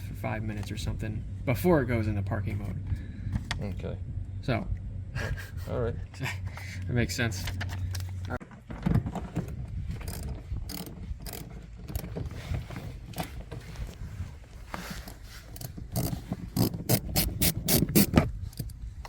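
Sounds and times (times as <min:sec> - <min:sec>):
mechanical clicks and rattles: 0:10.0 - 0:12.2.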